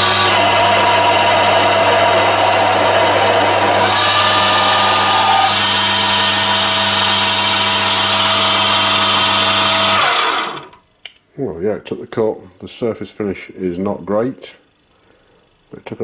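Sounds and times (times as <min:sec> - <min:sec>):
lathe motor hum: 0:00.0 - 0:10.8
lathe whine: 0:00.0 - 0:10.8.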